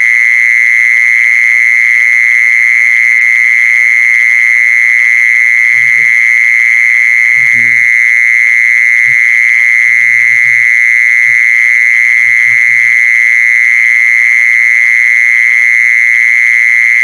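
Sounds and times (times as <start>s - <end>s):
insect buzzing trill: 5.4s - 14.1s.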